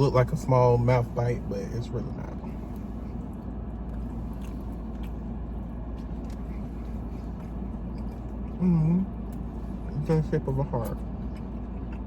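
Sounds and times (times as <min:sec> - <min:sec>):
low car cabin hum: 0:00.0 - 0:12.0
person chewing: 0:02.6 - 0:09.9, 0:10.9 - 0:12.0.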